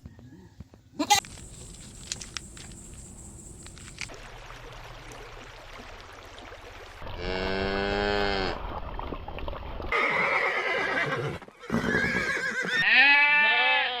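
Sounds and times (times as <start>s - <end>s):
loud wavering bleat: 1.0s - 1.3s, 12.8s - 14.0s
horse neighing: 1.0s - 2.0s, 9.9s - 13.9s.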